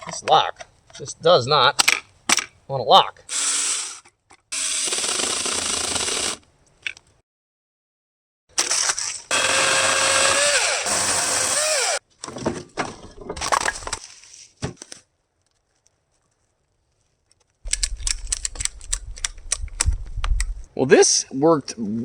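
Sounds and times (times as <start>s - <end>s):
electric chainsaw whining: 3.3s - 6.4s, 8.6s - 12.0s
wood cracking and breaking: 11.4s - 15.0s.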